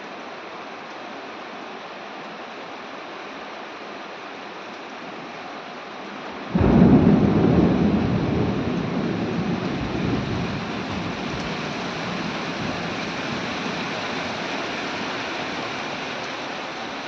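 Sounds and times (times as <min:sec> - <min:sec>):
heavy rain downpour: 0:00.0 - 0:17.0
thunder rumbling: 0:06.5 - 0:14.6.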